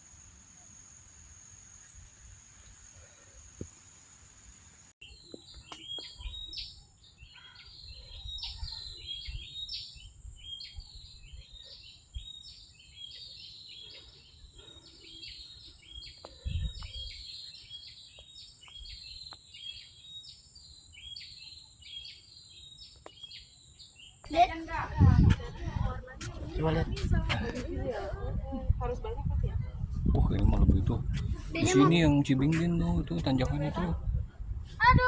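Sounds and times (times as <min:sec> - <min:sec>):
bird chirping: 0:05.0 - 0:24.4
low thumps and rumble: 0:24.7 - 0:35.0.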